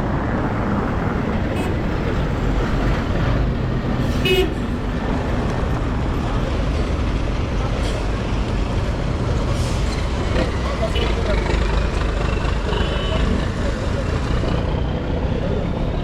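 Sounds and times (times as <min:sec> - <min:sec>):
street traffic: 0:00.0 - 0:16.0
vehicle horn toot: 0:04.2 - 0:04.6, 0:12.7 - 0:13.4.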